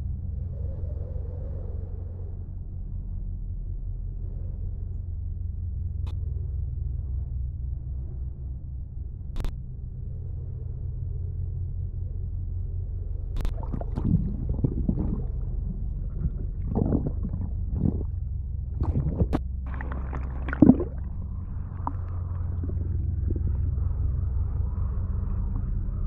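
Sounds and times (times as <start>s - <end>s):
muffled low rumble: 0.0s - 26.0s
sea water gurgling and splashing: 13.4s - 26.0s.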